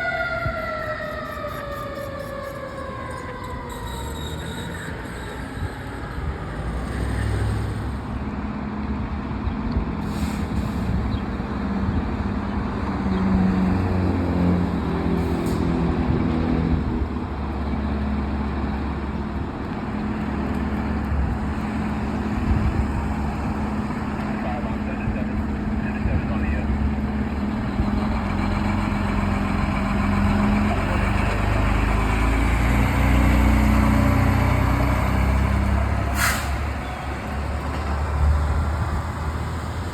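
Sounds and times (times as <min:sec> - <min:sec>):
siren winding down: 0:00.0 - 0:07.4
heavy truck engine running: 0:02.6 - 0:39.9
air hisses: 0:36.2 - 0:36.7.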